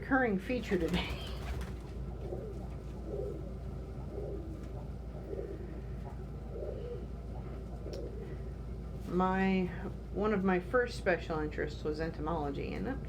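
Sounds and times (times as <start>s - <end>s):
pigeons cooing: 0.7s - 9.0s.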